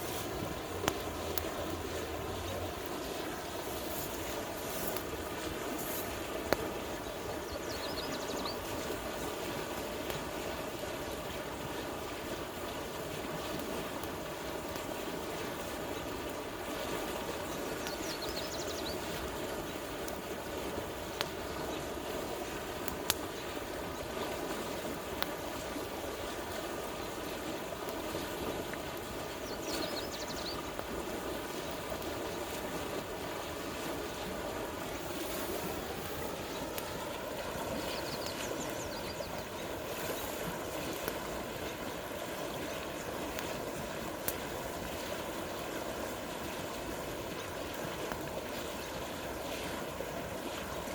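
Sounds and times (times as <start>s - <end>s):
campfire cracks: 0.0s - 7.2s, 22.5s - 23.5s, 24.9s - 25.7s, 34.8s - 42.1s, 42.7s - 45.2s
river flowing: 0.0s - 50.9s.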